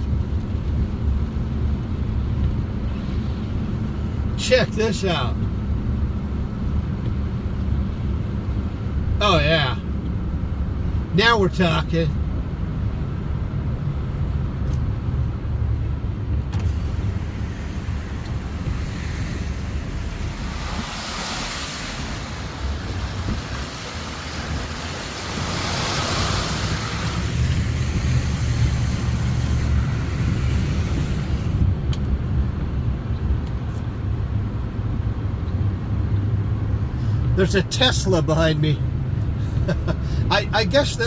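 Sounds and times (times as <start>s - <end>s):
car engine rumble: 0.0s - 41.0s
water spray rushing: 16.6s - 31.6s.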